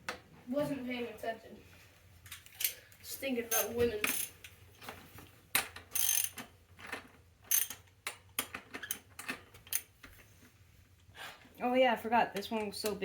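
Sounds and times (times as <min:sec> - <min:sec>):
socket ratchet clicking: 0:05.9 - 0:06.5, 0:07.5 - 0:09.9.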